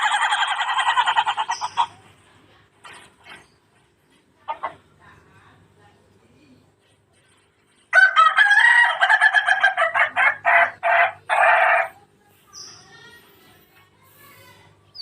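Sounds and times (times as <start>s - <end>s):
rooster crowing: 7.9s - 10.0s.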